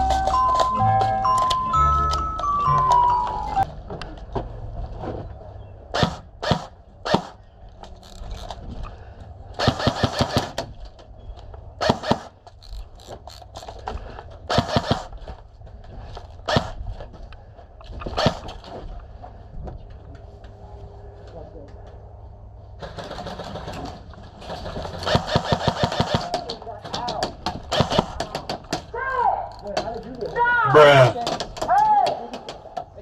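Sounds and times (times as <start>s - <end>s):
airsoft gun shots: 5.9s - 7.4s, 9.6s - 10.6s, 11.8s - 12.4s, 14.5s - 15.1s, 25.0s - 26.4s, 27.6s - 28.2s.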